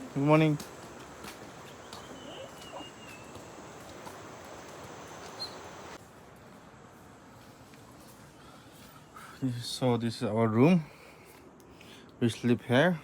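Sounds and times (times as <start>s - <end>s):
steady background hiss: 0.0s - 13.0s
bird whistle: 1.7s - 3.9s, 5.2s - 6.0s.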